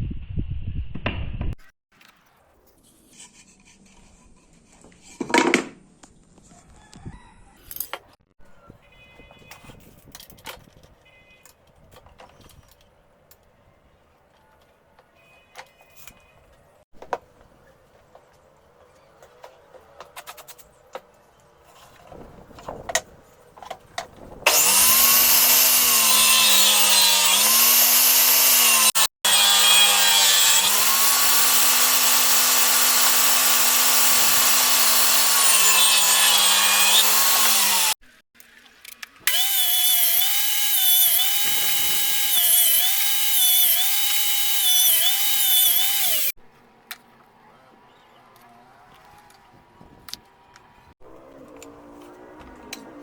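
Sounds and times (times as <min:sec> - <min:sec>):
power tool cutting wood: 0:24.5 - 0:38.0, 0:39.2 - 0:46.4.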